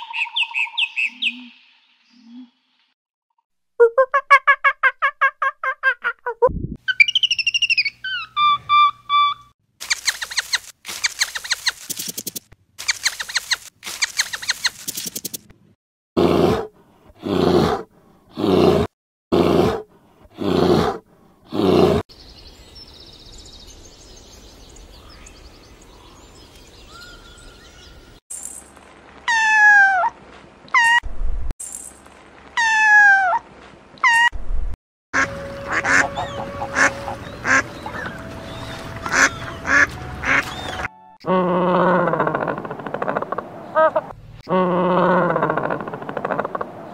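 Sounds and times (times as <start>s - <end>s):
geese honking: 35.2s - 40.9s
sweeping animal calls: 35.2s - 40.9s
loud animal calls: 41.6s - 46.8s.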